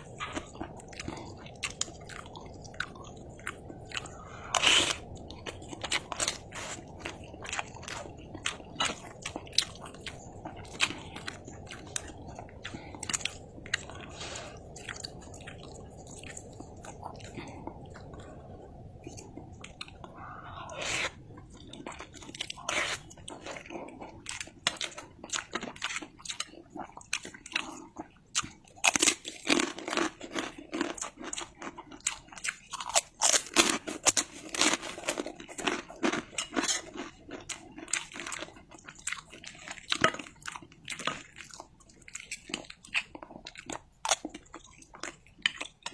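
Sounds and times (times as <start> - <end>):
low steady rumble: 0.0 - 25.3
chewing and wet mouth smacks: 0.0 - 33.2, 35.0 - 45.9.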